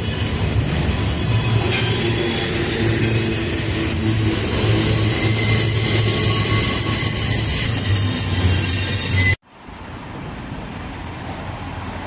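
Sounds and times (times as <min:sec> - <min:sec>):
train wheels squealing: 0:00.0 - 0:09.4
freight train rumbling past: 0:00.0 - 0:12.0.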